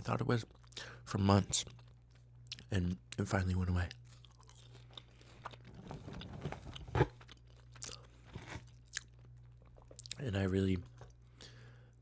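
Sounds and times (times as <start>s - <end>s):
chewing crispy chicken: 4.0s - 10.2s.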